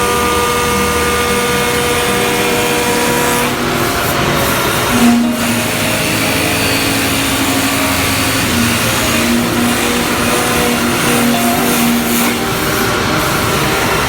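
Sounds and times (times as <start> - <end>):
machinery running: 0.2 - 14.0.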